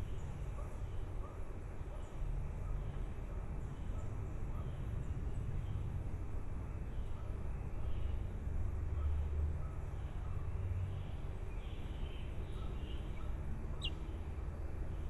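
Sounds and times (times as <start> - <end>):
baby birds chirping: 12.6 - 14.1.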